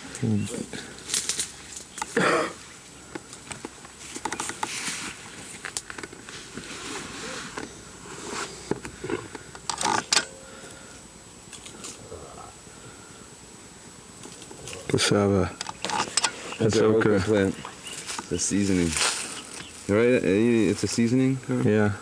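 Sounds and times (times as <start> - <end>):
rustling and crackling: 0.0 - 10.2, 14.1 - 21.3.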